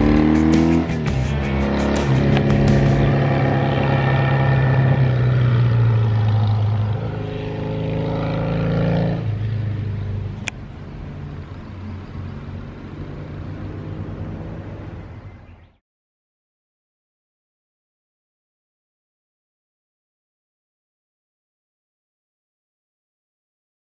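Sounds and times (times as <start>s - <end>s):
motorcycle riding past: 0.0s - 10.4s, 11.1s - 15.5s.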